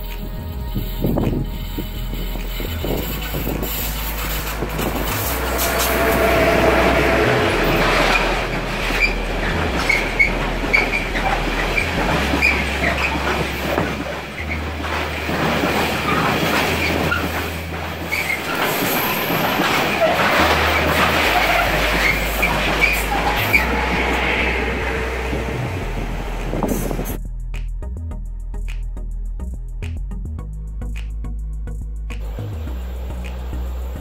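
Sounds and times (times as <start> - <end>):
freight train wheels rumbling: 0.0 - 27.2, 32.2 - 34.0
train wheel squeals: 0.5 - 27.2.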